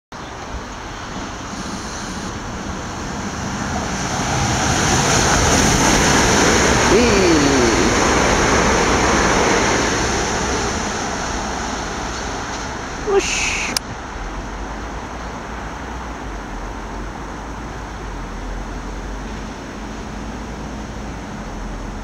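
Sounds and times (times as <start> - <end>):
train passing at speed: 0.2 - 13.0.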